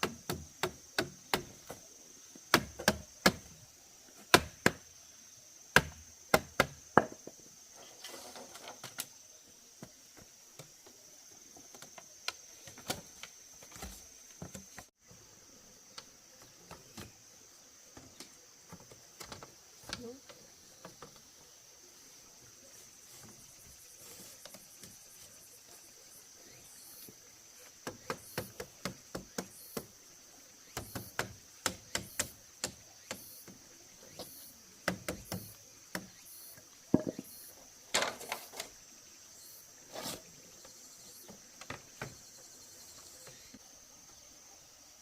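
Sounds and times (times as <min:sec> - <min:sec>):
high insect drone: 0:00.0 - 0:45.0
sharp knocks and clicks: 0:36.9 - 0:37.3.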